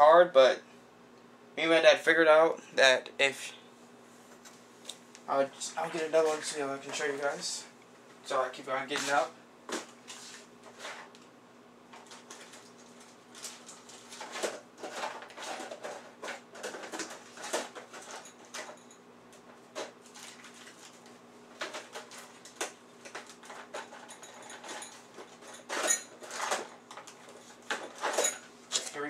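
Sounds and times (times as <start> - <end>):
faint steady hum: 0.0 - 29.0
small parts clicking and rustling: 21.6 - 29.0.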